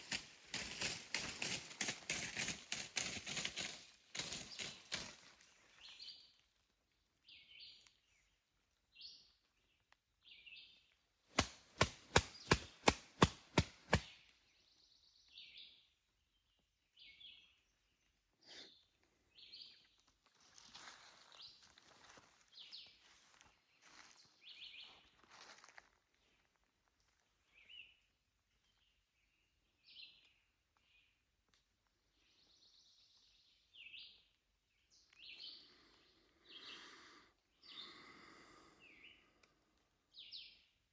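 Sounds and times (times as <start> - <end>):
sharp loud clicks: 11.4 - 14.0.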